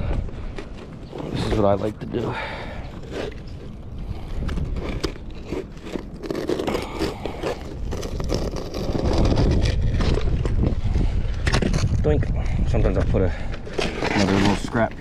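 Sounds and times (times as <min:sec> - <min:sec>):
shingles scraping on roof: 0:02.6 - 0:10.6, 0:13.6 - 0:15.0.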